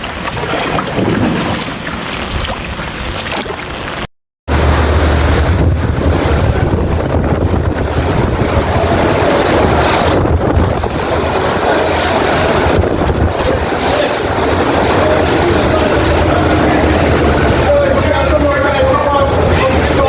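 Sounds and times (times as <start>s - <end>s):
wind buffeting microphone: 4.5s - 20.0s.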